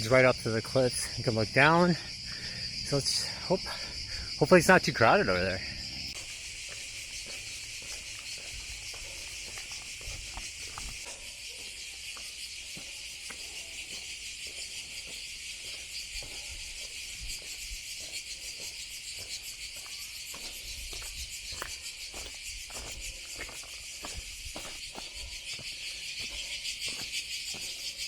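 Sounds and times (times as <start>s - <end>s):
cicadas buzzing: 0.0s - 28.0s
footsteps: 6.1s - 28.0s.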